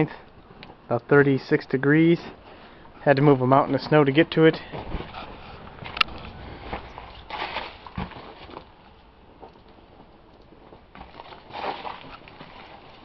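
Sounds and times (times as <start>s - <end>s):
rustle: 4.8s - 13.0s.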